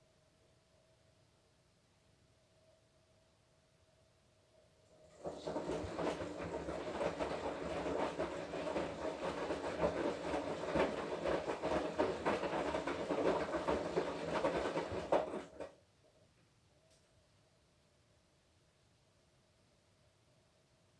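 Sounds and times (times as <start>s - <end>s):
laundry tumbling and clattering: 5.1s - 15.7s
washing machine drum turning: 5.2s - 15.7s.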